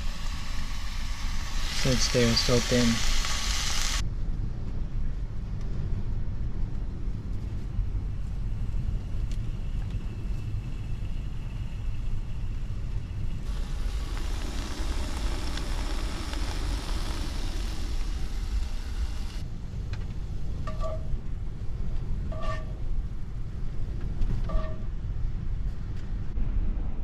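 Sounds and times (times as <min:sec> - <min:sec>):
beef sizzling in a pan: 0:00.0 - 0:04.0, 0:13.4 - 0:19.4
wind rumble on microphone: 0:04.0 - 0:27.0.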